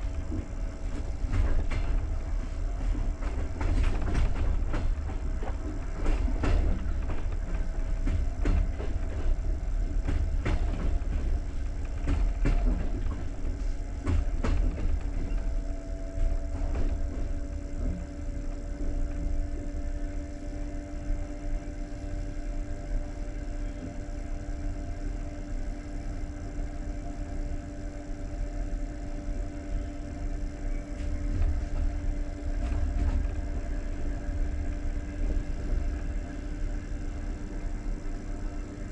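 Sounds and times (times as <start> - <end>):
train carriage low rumble: 0.0 - 38.9
train wheels and couplings knocking: 0.0 - 38.9.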